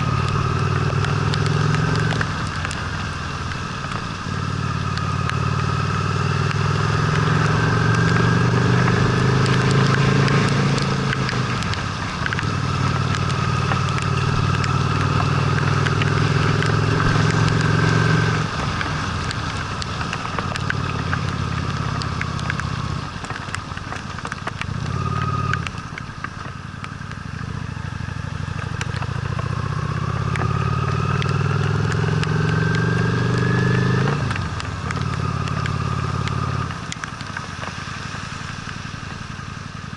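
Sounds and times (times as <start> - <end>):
motorcycle engine accelerating: 0.0 - 26.0, 26.7 - 39.9
small ticks: 0.2 - 2.9, 9.4 - 27.5, 28.2 - 37.8.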